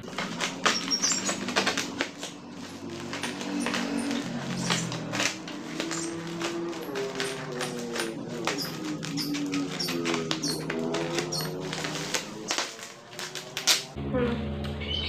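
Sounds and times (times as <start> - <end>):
plastic packaging crackling: 0.0 - 14.0.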